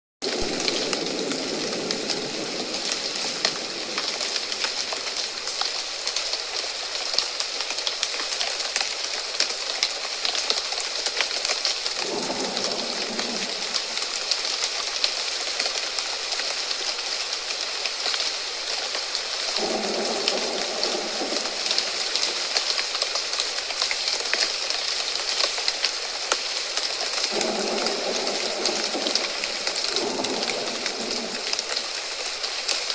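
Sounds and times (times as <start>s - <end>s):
rain hiss with pattering drops: 0.2s - 32.9s
low rumbles of thunder: 0.3s - 6.1s, 11.9s - 15.7s, 19.4s - 23.8s, 27.2s - 32.5s.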